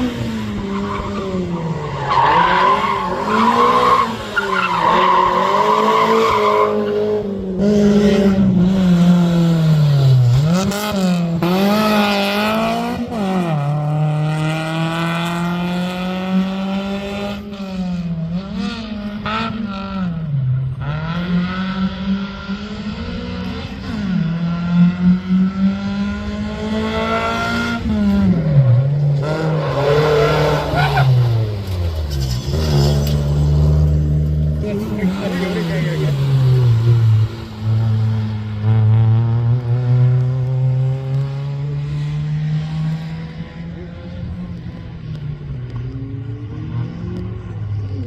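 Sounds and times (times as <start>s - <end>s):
rally car engine revving: 0.0s - 48.0s
tyre squeal: 29.5s - 31.3s.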